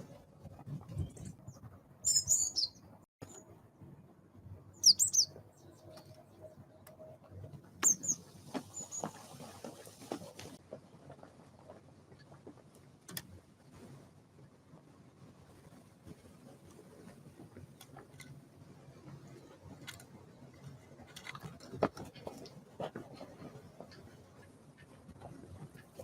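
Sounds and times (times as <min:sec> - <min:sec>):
small birds chirping: 0:00.9 - 0:03.4, 0:04.8 - 0:06.8, 0:07.8 - 0:09.4.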